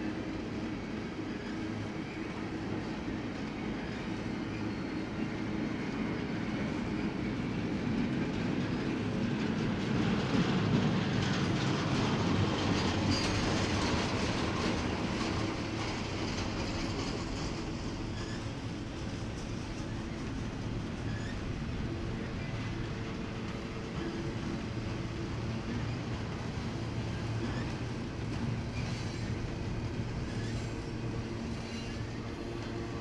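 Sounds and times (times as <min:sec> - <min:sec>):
freight train rolling on rails: 0:00.0 - 0:33.0
wheels clicking over track: 0:08.1 - 0:33.0.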